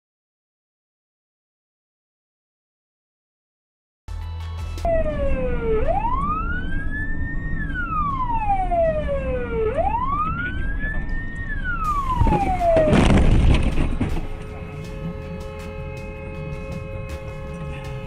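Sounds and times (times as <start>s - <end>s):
low vehicle rumble: 4.8s - 18.0s
siren wailing: 4.9s - 15.2s
loud rushing noise: 11.9s - 14.6s.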